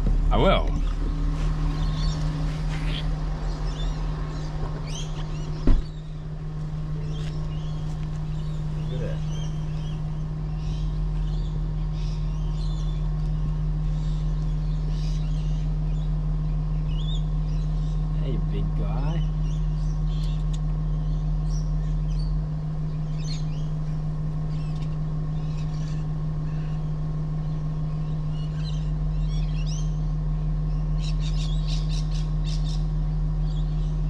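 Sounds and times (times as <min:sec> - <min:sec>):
birds chirping: 0:00.0 - 0:34.0
diesel engine idling: 0:00.0 - 0:34.0
car door shutting: 0:04.5 - 0:06.2.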